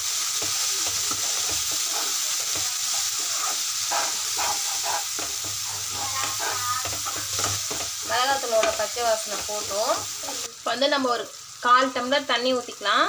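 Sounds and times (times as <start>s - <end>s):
masala sizzling in oil: 0.0s - 13.0s
spoon scraping pan: 0.2s - 10.5s.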